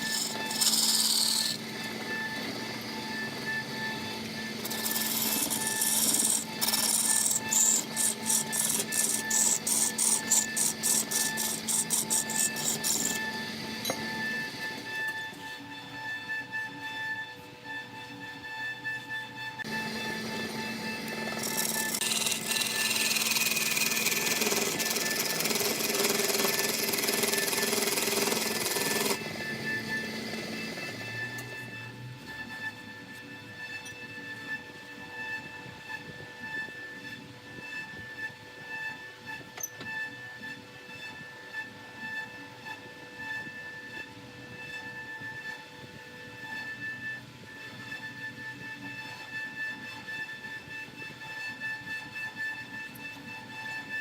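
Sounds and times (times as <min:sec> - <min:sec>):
tool rasping wood: 0:00.0 - 0:01.7, 0:04.5 - 0:13.3, 0:21.0 - 0:29.2.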